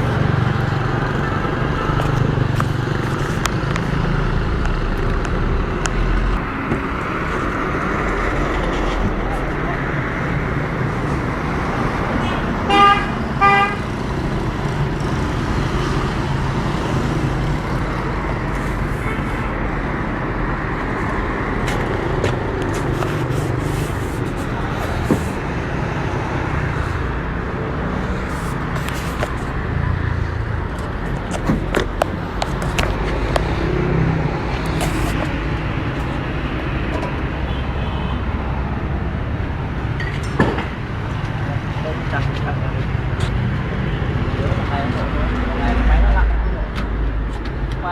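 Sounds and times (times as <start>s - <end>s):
engine and traffic noise: 0.0s - 47.9s
vehicle horn toots: 12.2s - 13.9s, 37.4s - 38.2s.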